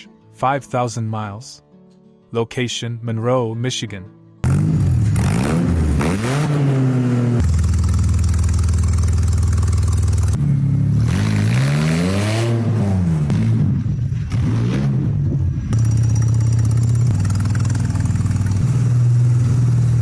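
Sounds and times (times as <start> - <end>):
car engine revving: 4.4 - 20.0.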